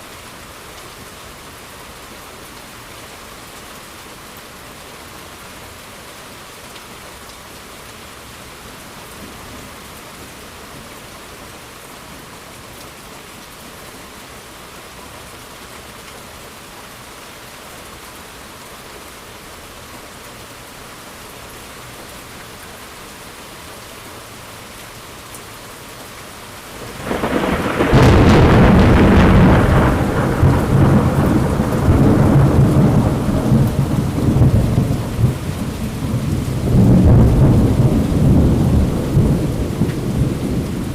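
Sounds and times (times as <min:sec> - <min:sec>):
steady rainfall hissing: 0:00.0 - 0:40.9
thunderclap and rumbling thunder: 0:26.8 - 0:40.9.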